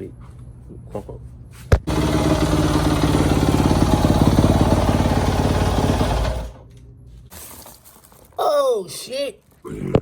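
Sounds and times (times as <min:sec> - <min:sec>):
dirt bike engine running: 0:01.8 - 0:06.6.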